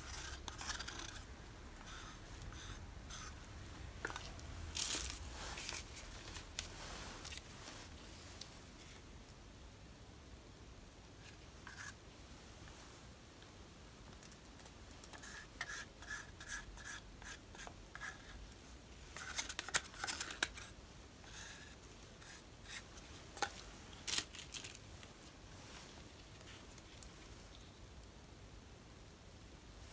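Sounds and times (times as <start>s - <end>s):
art materials scraping and clicking: 0.0s - 3.4s.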